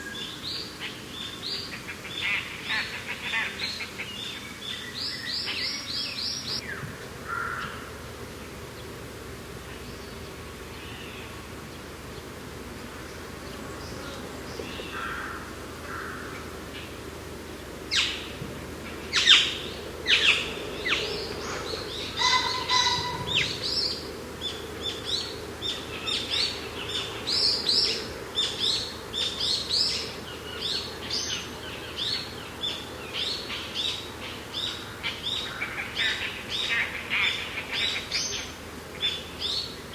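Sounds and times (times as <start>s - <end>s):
songbirds chirping and singing: 0.1s - 6.6s, 17.9s - 39.9s.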